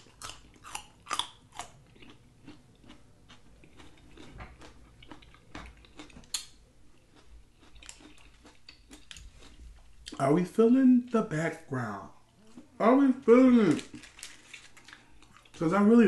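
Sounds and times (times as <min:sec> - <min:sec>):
chewing raw carrot: 0:00.0 - 0:10.3.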